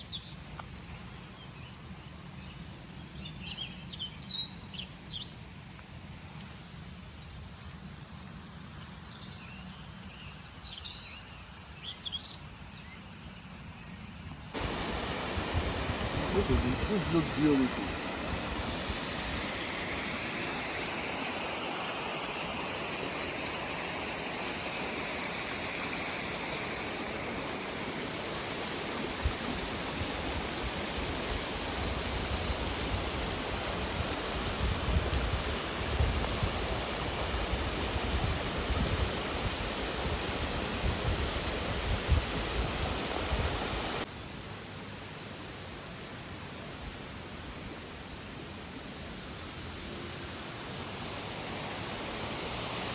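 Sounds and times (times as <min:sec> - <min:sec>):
waterfall rushing: 0:14.6 - 0:44.1, 0:49.5 - 0:52.9.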